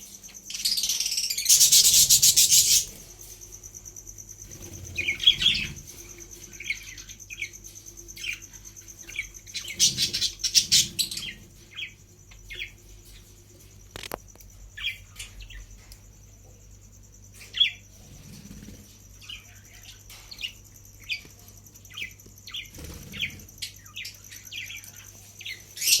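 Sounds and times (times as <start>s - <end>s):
parrot chicks chirping: 0.0s - 3.0s, 4.5s - 13.1s, 19.2s - 26.0s.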